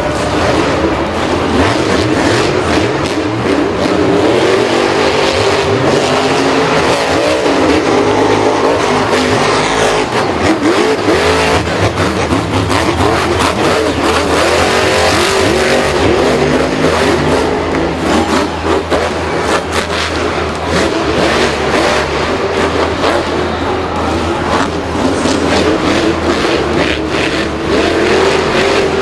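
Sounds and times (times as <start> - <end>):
racing engines revving: 0.0 - 29.0.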